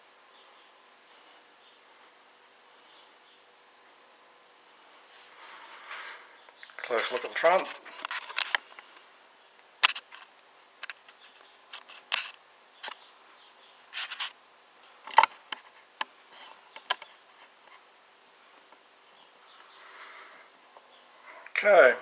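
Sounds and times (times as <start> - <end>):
faint steady hum: 0.0 - 22.0
clicks and rubs from handling toy car: 9.8 - 13.0.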